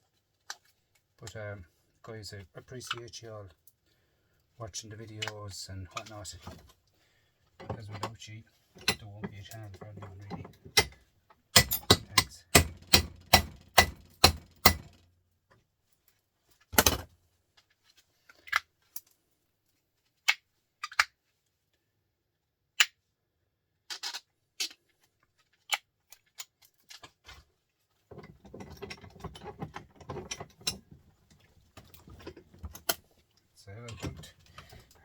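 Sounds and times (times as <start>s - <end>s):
sharp metallic knocks: 11.6s - 15.0s.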